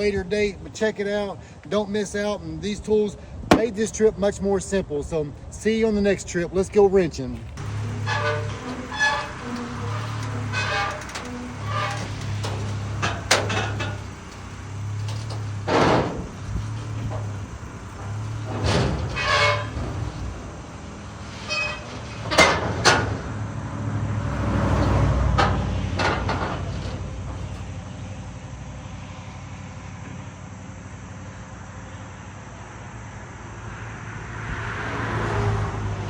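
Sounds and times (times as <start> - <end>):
truck engine running: 0.0 - 33.6
metallic knocks and clanks: 3.5 - 4.0, 7.6 - 23.3, 25.2 - 27.7.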